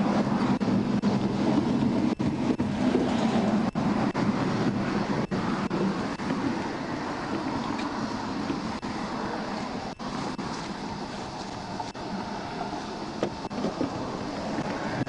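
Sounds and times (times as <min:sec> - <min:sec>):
vehicle and road noise: 0:00.0 - 0:15.0.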